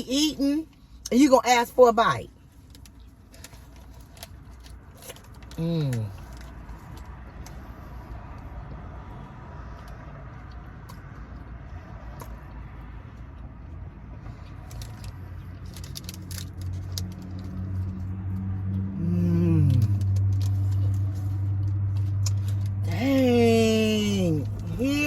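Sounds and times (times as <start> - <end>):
car engine hum: 0.0 - 25.0
chewing crunchy taco shells: 0.6 - 25.0.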